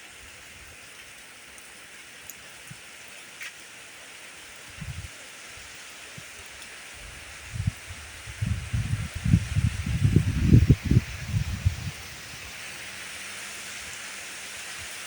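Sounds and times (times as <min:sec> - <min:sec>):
steady rain falling: 0:00.0 - 0:15.0
low rumble: 0:08.4 - 0:12.5.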